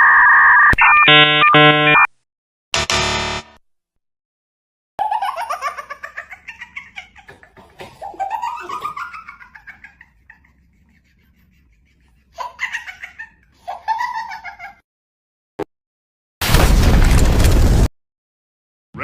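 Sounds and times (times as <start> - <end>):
short electronic tone: 0.0 - 2.1, 2.8 - 3.6.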